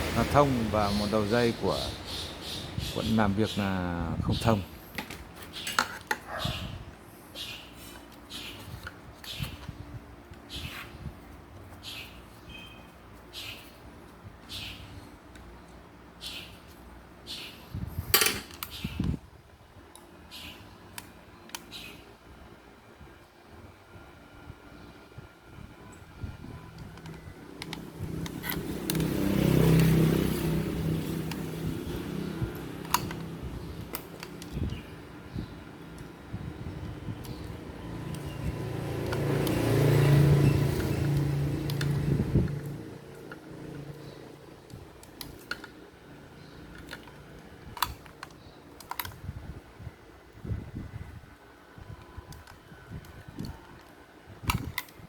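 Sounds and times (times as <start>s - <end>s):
motor vehicle passing by: 0.0s - 3.5s, 26.1s - 47.7s
sharp clicks: 26.7s - 34.8s, 36.8s - 49.2s.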